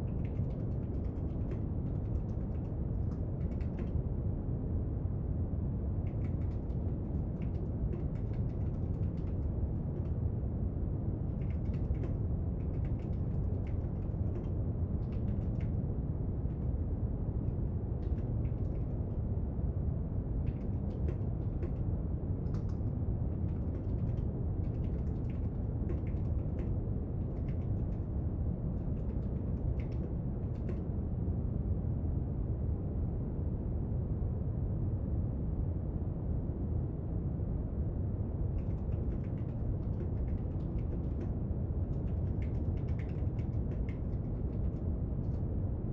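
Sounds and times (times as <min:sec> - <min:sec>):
small clicks and taps: 0:00.0 - 0:04.0, 0:06.0 - 0:10.2, 0:11.3 - 0:15.8, 0:18.0 - 0:19.1, 0:20.5 - 0:21.8, 0:22.4 - 0:28.1, 0:28.8 - 0:30.9, 0:38.6 - 0:45.4.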